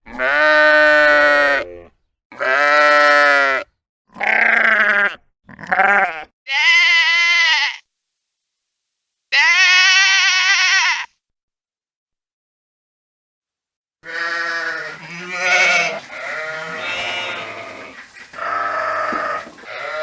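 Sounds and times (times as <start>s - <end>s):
sheep bleating: 0.1s - 7.8s, 9.3s - 11.1s, 14.0s - 20.0s.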